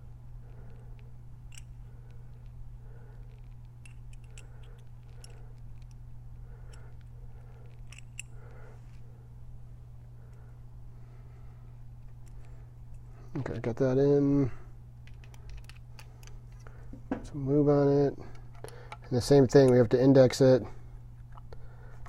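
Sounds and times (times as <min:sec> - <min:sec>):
steady low hum: 0:00.0 - 0:22.0
light clicks and taps of metal parts: 0:00.5 - 0:06.0, 0:06.6 - 0:09.0, 0:15.0 - 0:17.3, 0:18.2 - 0:20.0.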